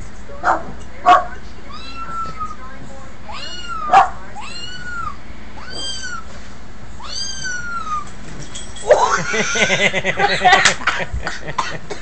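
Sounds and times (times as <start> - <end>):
cat meowing: 1.7 - 2.6, 3.3 - 6.3, 7.0 - 8.0.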